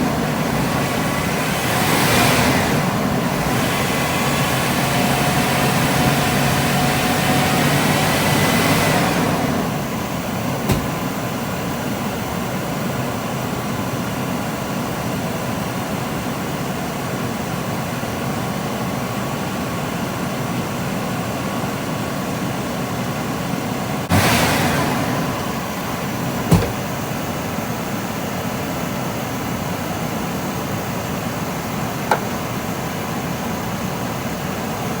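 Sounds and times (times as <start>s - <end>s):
car engine idling: 9.6s - 12.3s, 25.1s - 34.0s.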